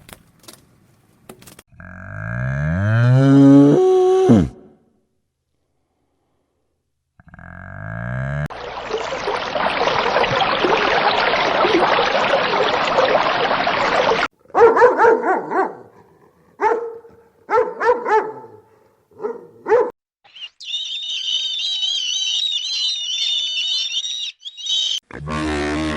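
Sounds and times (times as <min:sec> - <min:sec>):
dog barking: 0:14.5 - 0:20.0.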